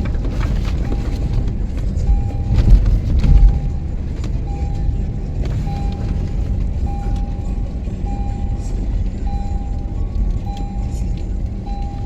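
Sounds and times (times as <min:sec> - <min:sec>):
vehicle engine rumble: 0:00.0 - 0:12.0
short electronic beeps: 0:02.1 - 0:02.8, 0:03.4 - 0:06.2, 0:06.8 - 0:12.0.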